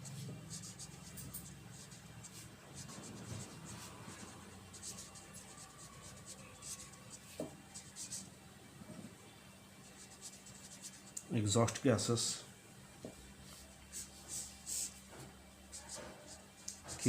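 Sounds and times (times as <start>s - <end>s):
pen scratching handwriting: 0.0s - 8.3s
low steady hum: 0.0s - 17.0s.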